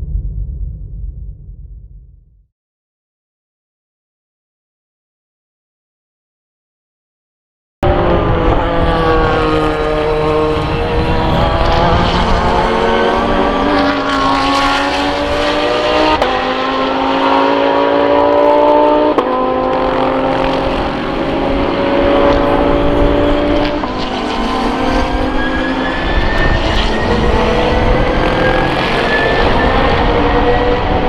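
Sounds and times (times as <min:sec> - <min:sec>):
race car engine accelerating: 0:07.8 - 0:31.0.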